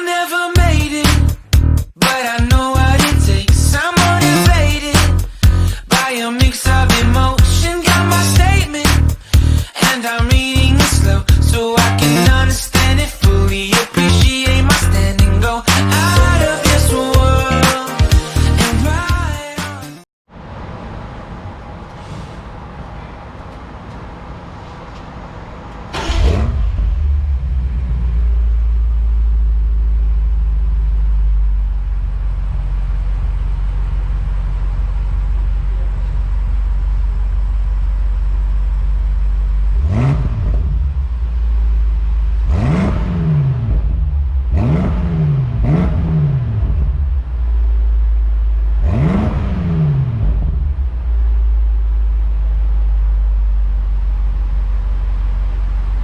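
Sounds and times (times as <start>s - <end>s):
car engine starting and revving: 10.5s - 17.0s, 20.4s - 56.0s.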